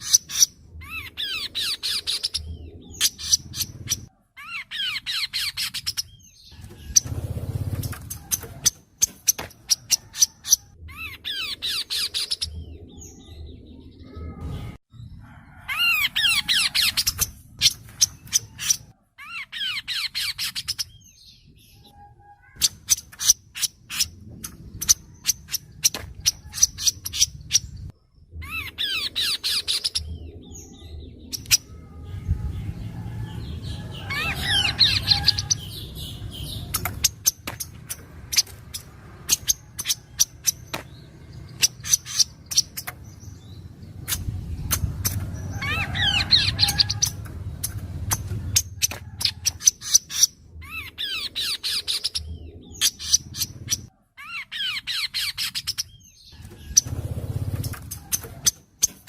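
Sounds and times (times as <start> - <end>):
low rumble: 23.8 - 41.7, 42.3 - 49.5.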